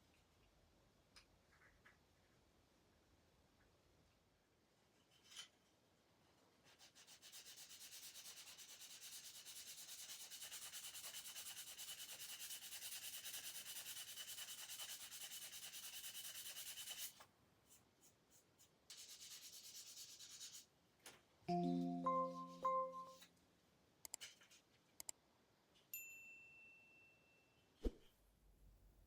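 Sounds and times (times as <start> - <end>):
hand sanding plastic: 6.8 - 20.7.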